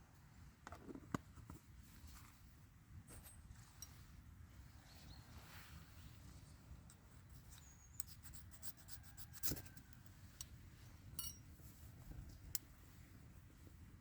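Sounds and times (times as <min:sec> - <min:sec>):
light scraping and rubbing: 0:06.4 - 0:10.0.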